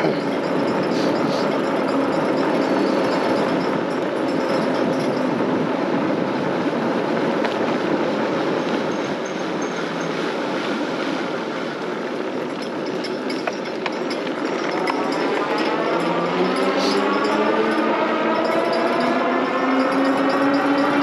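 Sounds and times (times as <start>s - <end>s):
wind rush: 0.0s - 12.5s
road noise: 0.0s - 21.0s.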